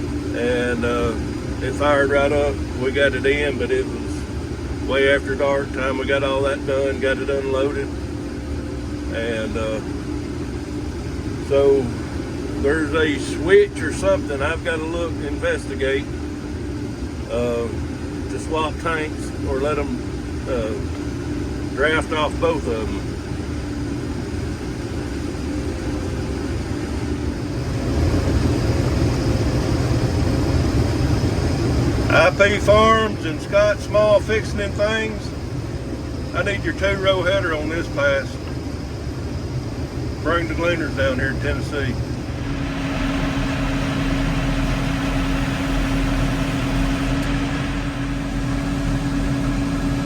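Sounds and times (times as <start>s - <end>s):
diesel engine droning: 0.0s - 23.6s, 25.6s - 50.0s
hydraulic pump whine: 26.5s - 50.0s
truck engine running: 40.4s - 50.0s.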